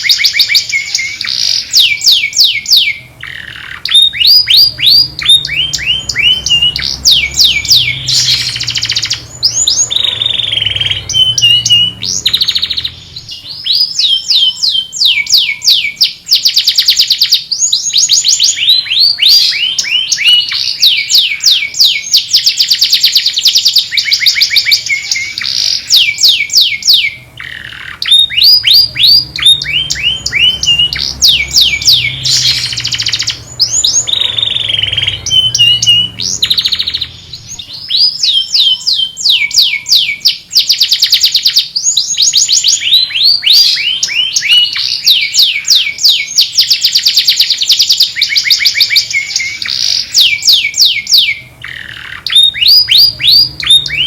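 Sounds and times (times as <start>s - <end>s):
canary singing: 0.0s - 54.0s.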